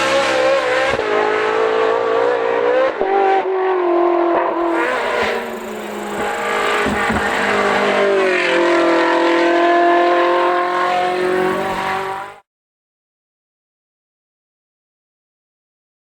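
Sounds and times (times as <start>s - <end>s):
race car engine revving: 0.0s - 12.4s.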